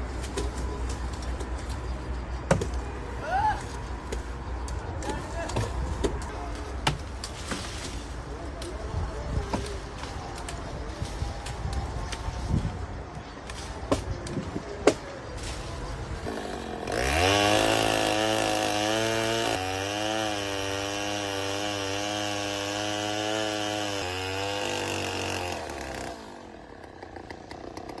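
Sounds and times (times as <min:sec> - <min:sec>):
chainsaw revving: 0:16.2 - 0:28.0.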